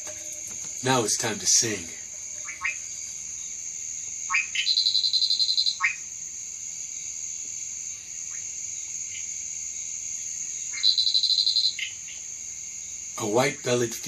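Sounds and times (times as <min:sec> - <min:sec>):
frog falling chirp: 0:00.0 - 0:02.9
tree frog trilling call: 0:00.0 - 0:06.1, 0:08.2 - 0:09.3, 0:10.5 - 0:12.3
high insect drone: 0:00.0 - 0:14.0.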